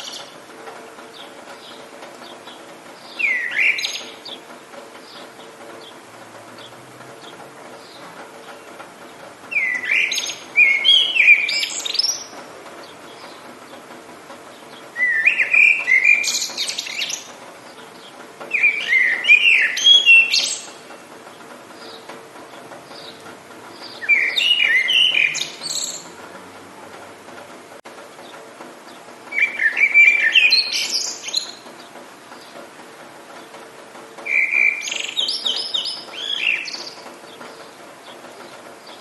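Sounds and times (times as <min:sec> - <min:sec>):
faint hiss of rain: 0:00.0 - 0:39.0
songbird warbling: 0:01.1 - 0:06.0, 0:09.5 - 0:13.5, 0:14.5 - 0:21.1, 0:22.9 - 0:26.2, 0:28.9 - 0:32.6, 0:34.2 - 0:39.0.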